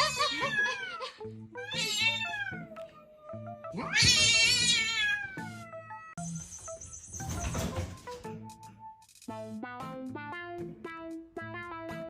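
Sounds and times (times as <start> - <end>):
background music: 0.0 - 12.0
cat meowing: 1.6 - 6.2.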